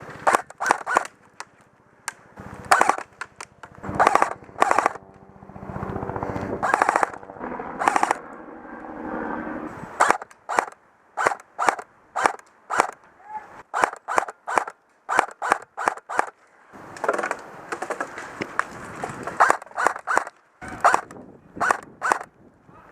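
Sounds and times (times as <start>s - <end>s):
airsoft guns firing: 0.0s - 1.5s, 2.1s - 5.1s, 6.3s - 8.2s, 10.0s - 13.0s, 13.7s - 16.4s, 19.4s - 22.3s.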